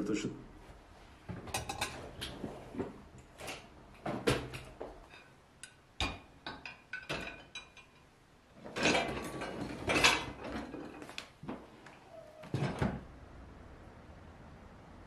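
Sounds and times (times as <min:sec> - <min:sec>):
dishes and utensils clinking: 0:03.4 - 0:11.1.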